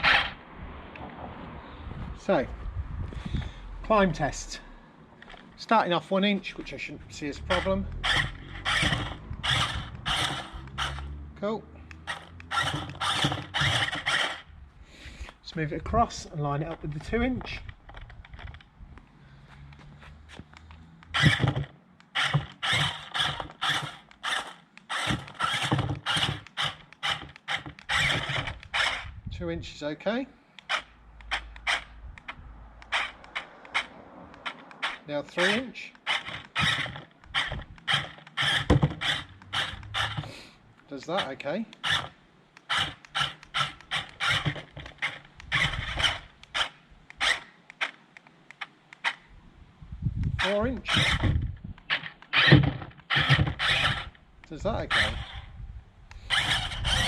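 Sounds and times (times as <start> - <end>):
toy car electric motors whirring: 0.0 - 0.4, 7.2 - 11.2, 11.9 - 14.5, 19.7 - 29.2, 30.6 - 40.5, 41.2 - 48.0, 50.2 - 55.5, 56.1 - 57.0
tyres scrabbling and scraping: 5.2 - 11.1, 12.0 - 14.4, 30.7 - 47.9
faint clicks: 17.0 - 21.2.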